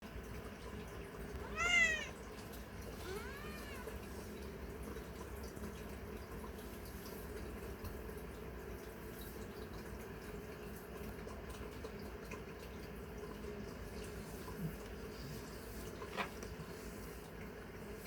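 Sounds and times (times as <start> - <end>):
low background hum: 0.0 - 18.0
cat meowing: 1.4 - 2.2, 3.0 - 4.0.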